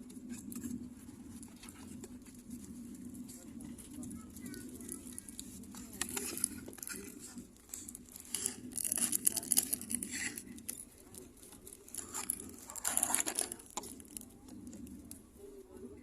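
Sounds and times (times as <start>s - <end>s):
steady low hum: 0.0s - 16.0s
plastic packaging crinkling and tearing: 4.6s - 15.2s.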